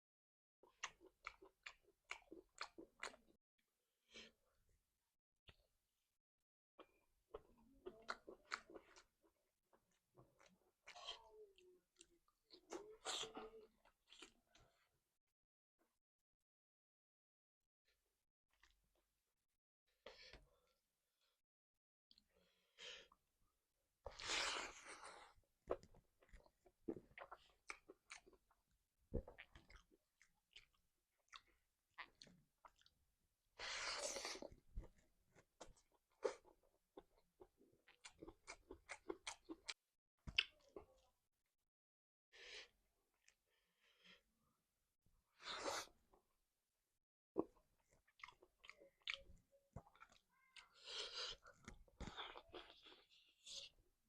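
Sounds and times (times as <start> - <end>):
person chewing food: 0.7 - 3.3, 6.8 - 14.7, 24.0 - 28.6, 29.2 - 33.0, 33.8 - 41.0, 47.4 - 53.8.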